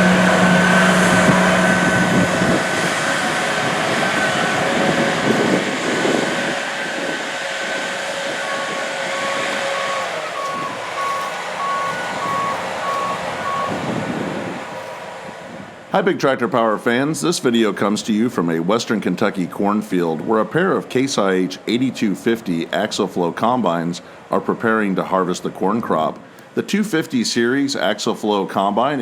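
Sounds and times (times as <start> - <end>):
combine harvester diesel engine: 0.0 - 26.3
backup alarm beeping: 8.2 - 15.0.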